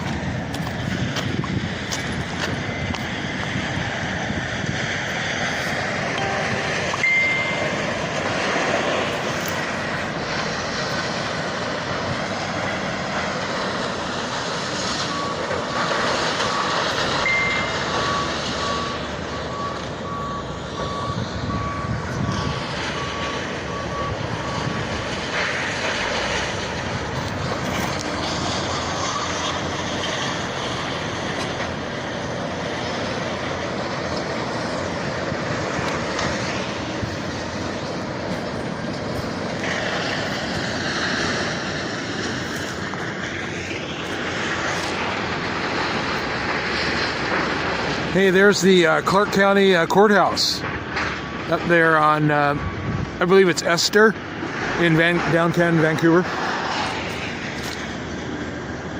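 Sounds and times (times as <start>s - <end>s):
heavy vehicles: 0.0s - 58.9s
reversing alarm beeping: 6.0s - 9.1s, 15.0s - 31.0s.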